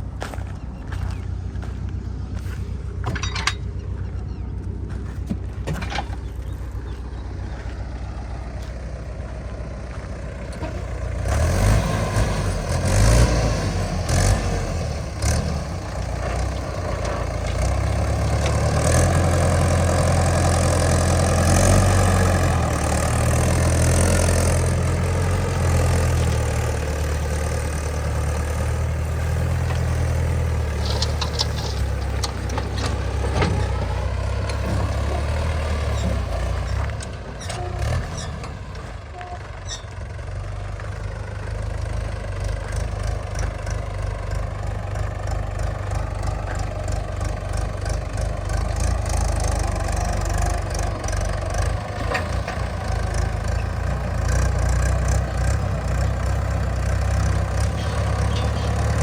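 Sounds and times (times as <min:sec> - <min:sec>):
diesel engine running: 0:00.0 - 0:59.0
machine clanks and knocks: 0:02.9 - 0:04.0, 0:05.2 - 0:06.4, 0:29.4 - 0:38.8, 0:57.6 - 0:59.0.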